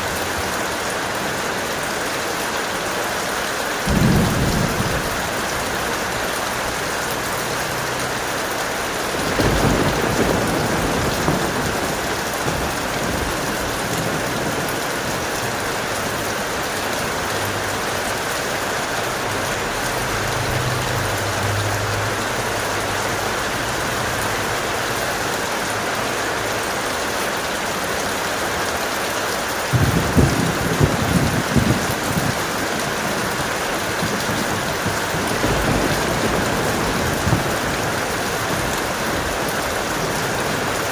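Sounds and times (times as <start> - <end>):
heavy rain falling: 0.0 - 40.9
thunder rumbling: 3.8 - 7.0, 7.8 - 25.0, 29.7 - 40.9.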